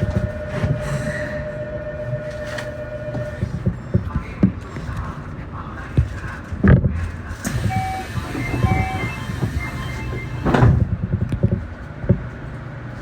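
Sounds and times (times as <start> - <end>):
train knocks: 0.0 - 3.8, 7.4 - 11.6
electric train rumbling: 0.0 - 13.0
electronic beeping chime: 7.7 - 10.5.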